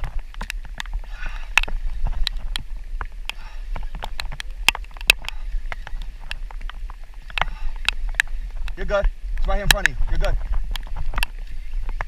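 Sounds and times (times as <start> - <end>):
wind buffeting microphone: 0.0 - 12.0
sharp irregular taps and clicks: 9.4 - 11.3.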